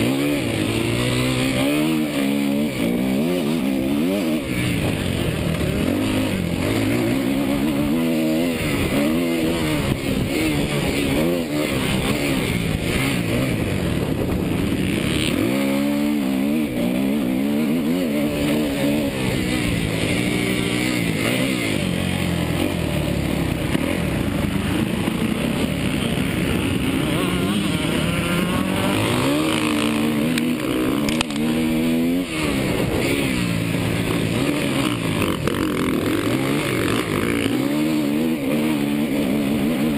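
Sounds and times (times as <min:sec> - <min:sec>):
dirt bike engine revving: 0:00.0 - 0:39.9
wind noise on microphone: 0:08.6 - 0:15.4.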